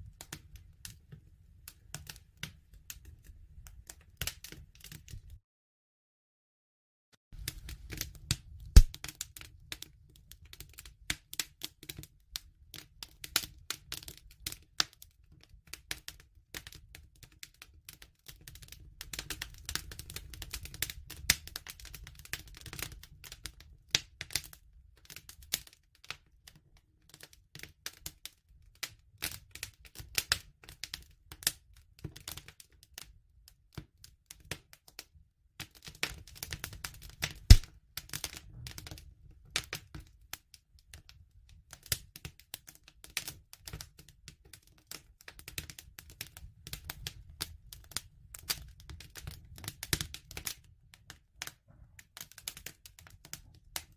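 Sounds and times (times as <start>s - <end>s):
campfire crackling: 7.4s - 9.8s, 36.1s - 39.0s.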